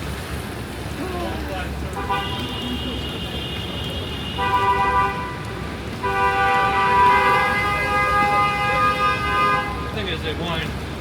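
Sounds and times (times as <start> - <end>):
wet street traffic hiss: 0.0 - 11.0
vehicle horn two-note blast: 6.0 - 9.8.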